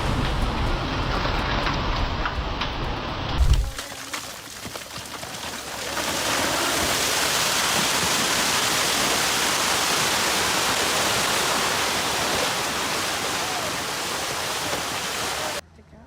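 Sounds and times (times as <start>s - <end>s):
rushing water: 3.3s - 15.6s.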